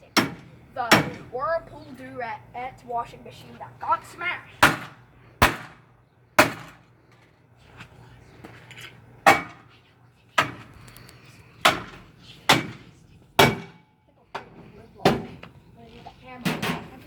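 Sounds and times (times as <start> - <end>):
bat striking plastic: 9.2 - 9.7, 13.4 - 13.8.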